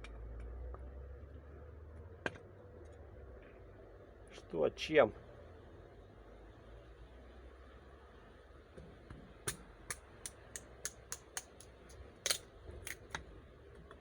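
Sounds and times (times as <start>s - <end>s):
wood fire crackling: 9.3s - 14.0s.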